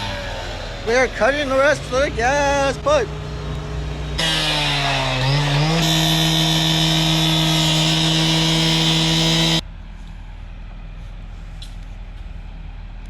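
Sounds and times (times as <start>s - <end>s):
cut-off saw grinding steel pipe: 0.0s - 9.6s.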